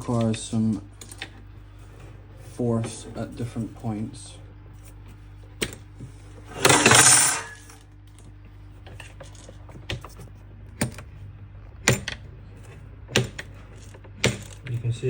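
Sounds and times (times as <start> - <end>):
metal tool scraping metal: 6.5 - 7.8.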